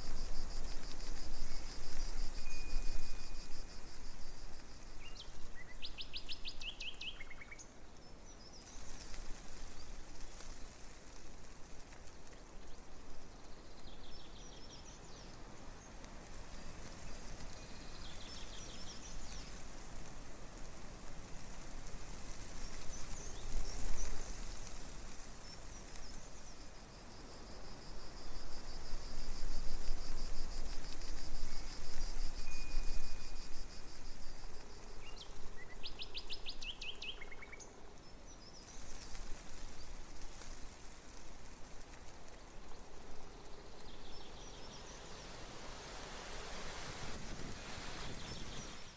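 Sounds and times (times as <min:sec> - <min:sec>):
outdoor background hiss: 0:00.0 - 0:48.9
songbirds singing: 0:05.0 - 0:09.0.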